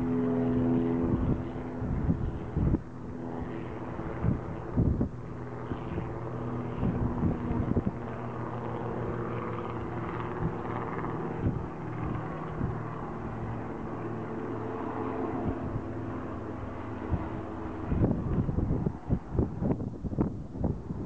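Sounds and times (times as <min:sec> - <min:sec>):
helicopter engine and rotor droning: 0:00.0 - 0:21.0
wind bumps on microphone: 0:00.8 - 0:02.8, 0:03.4 - 0:13.6, 0:17.0 - 0:21.0.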